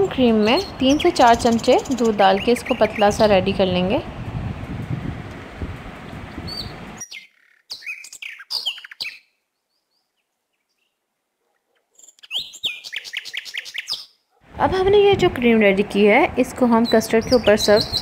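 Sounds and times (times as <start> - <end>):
small birds chirping: 0.0 - 3.8, 6.0 - 14.3, 16.6 - 18.0.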